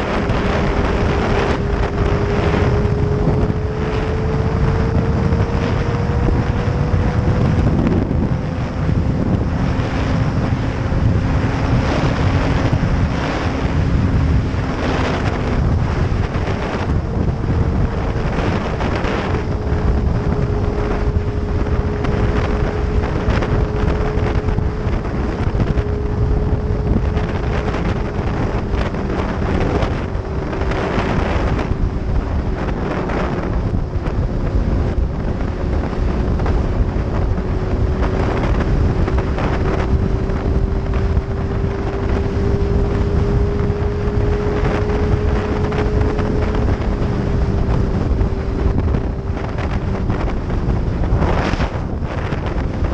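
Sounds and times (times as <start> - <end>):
motorcycle engine cruising: 0.0 - 52.9
wind buffeting microphone: 0.0 - 52.9.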